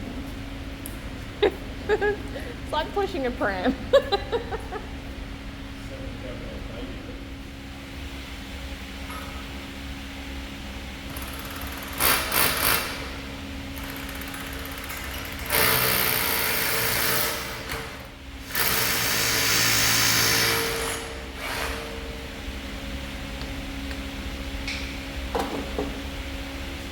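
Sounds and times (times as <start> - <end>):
low machinery hum: 0.0 - 26.9
power tool bursts: 11.1 - 13.2, 13.8 - 22.0.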